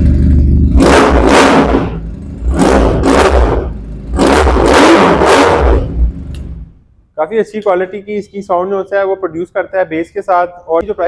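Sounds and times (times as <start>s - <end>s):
motorcycle engine revving: 0.0s - 6.8s.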